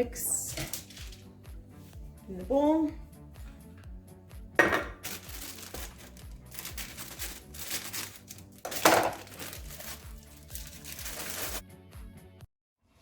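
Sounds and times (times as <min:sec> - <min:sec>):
loud plastic rustles: 0:05.0 - 0:11.6
plastic bag crinkling and tearing: 0:05.0 - 0:11.6.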